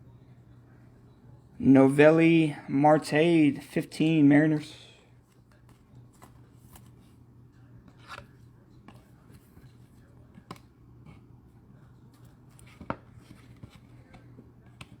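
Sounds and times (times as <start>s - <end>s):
steady low hum: 0.0s - 15.0s
cards and packaging rustling: 12.0s - 15.0s.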